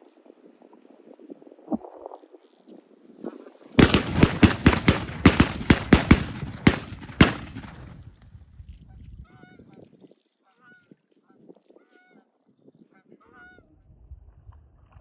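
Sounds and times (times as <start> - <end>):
rapid shotgun shots: 3.8 - 8.1.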